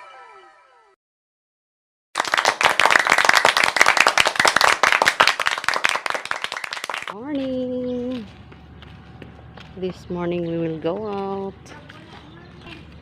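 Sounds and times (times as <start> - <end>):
rapid sharp clapping: 2.2 - 7.2.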